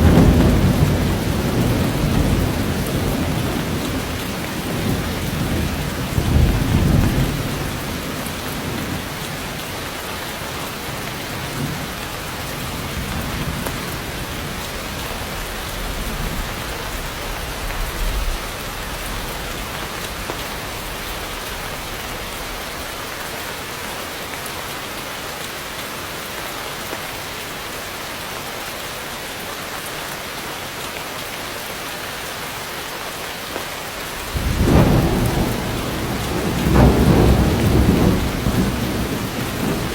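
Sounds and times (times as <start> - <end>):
low thunder rumbling: 0.0 - 9.5, 34.2 - 39.9
heavy rain pouring: 0.0 - 39.9.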